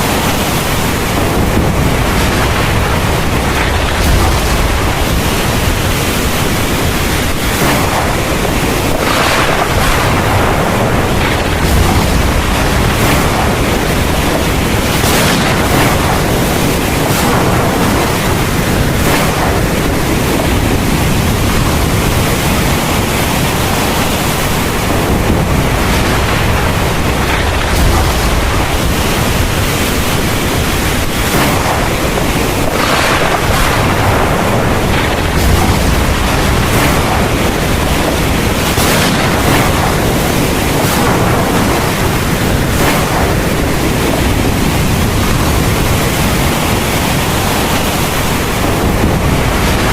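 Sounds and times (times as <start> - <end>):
heavy rain pouring: 0.0 - 49.9
thunder rumbling: 0.0 - 49.9.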